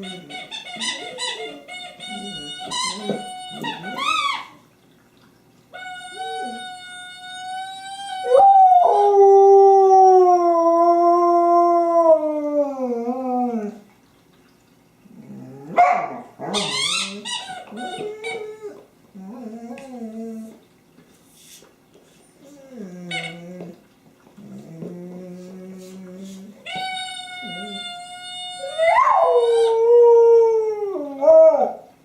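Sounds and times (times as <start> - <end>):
dog yipping: 5.9 - 8.4, 15.8 - 18.4, 26.7 - 29.7
dog howling: 6.1 - 13.8, 26.7 - 31.9.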